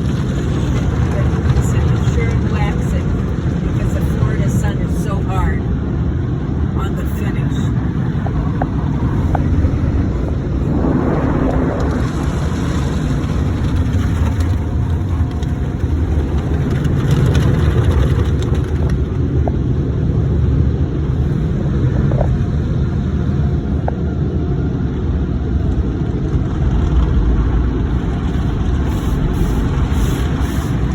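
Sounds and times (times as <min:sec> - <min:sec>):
car wash machinery rumbling: 0:00.0 - 0:30.9
car wash hiss: 0:27.9 - 0:30.9.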